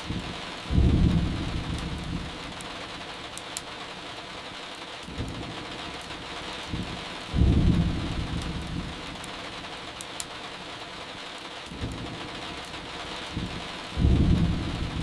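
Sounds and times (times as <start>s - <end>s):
thunder rumbling: 0.0s - 3.0s, 5.1s - 9.7s, 11.7s - 15.0s
steady rain: 0.0s - 15.0s.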